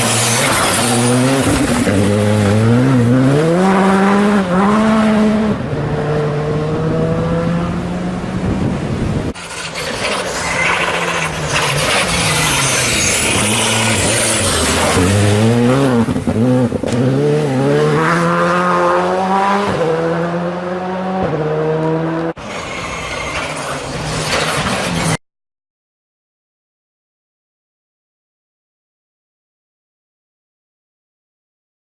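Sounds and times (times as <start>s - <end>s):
rally car engine revving hard: 0.0s - 8.6s, 9.2s - 22.4s.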